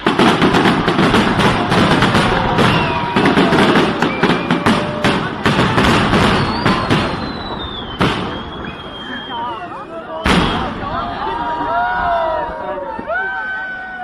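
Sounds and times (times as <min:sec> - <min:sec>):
fireworks bangs and crackling: 0:00.0 - 0:09.5, 0:10.2 - 0:13.1
whistling fireworks: 0:00.0 - 0:11.2.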